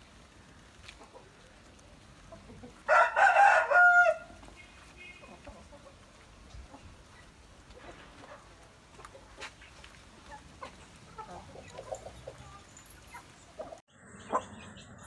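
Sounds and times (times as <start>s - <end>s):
rooster crowing: 2.9s - 4.4s.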